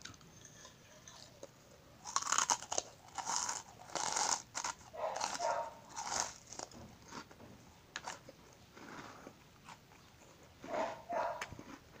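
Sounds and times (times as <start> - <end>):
crunchy snack chewing: 0.0 - 7.3.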